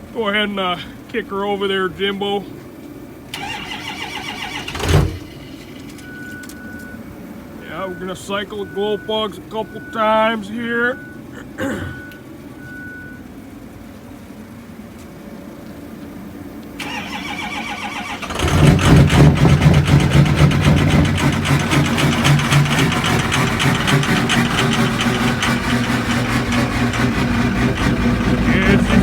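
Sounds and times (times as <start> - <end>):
diesel engine idling with clatter: 0.0 - 29.0
starter motor cranking: 3.3 - 6.5, 16.8 - 29.0.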